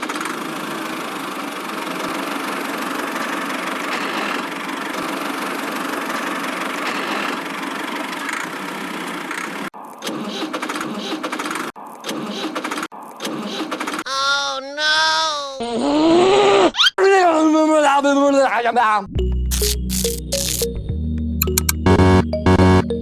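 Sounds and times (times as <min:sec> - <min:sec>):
small motor running: 0:19.5 - 0:20.7.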